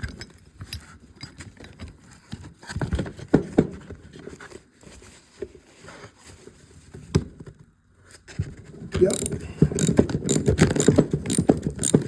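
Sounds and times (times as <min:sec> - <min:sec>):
metal tools knocking and clicking: 0:09.0 - 0:12.0.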